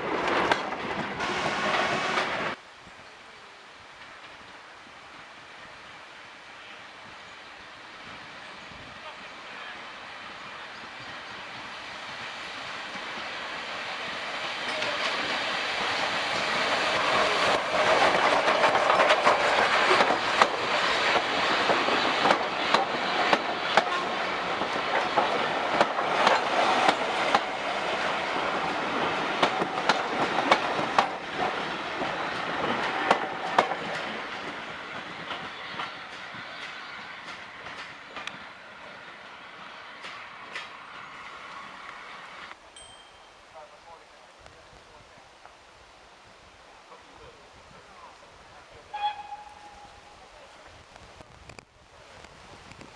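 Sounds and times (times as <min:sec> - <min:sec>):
train passing by: 0:00.0 - 0:02.6, 0:03.9 - 0:42.6
wheels clicking over rail joints: 0:14.6 - 0:27.6.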